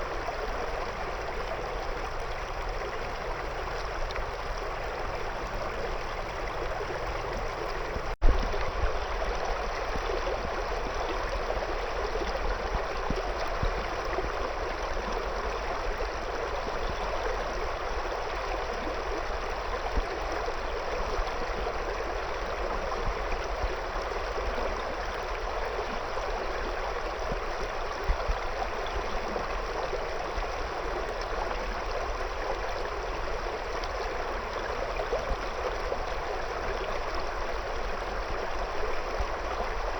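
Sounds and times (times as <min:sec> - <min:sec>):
river water flowing around stones: 0:00.0 - 0:39.9.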